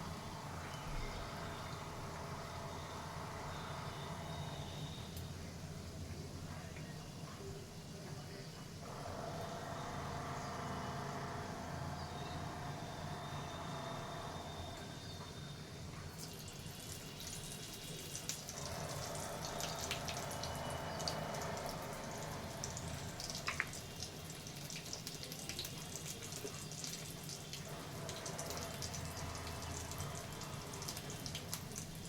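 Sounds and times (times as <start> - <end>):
steady low hum: 0.0 - 32.0
food sizzling in hot oil: 16.1 - 32.0.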